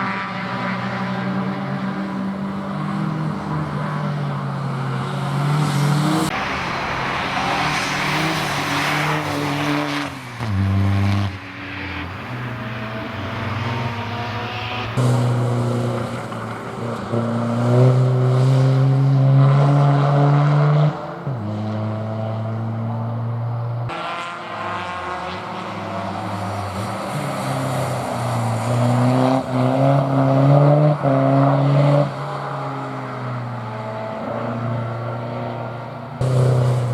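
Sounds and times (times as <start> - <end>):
race car engine revving: 0.0 - 36.9.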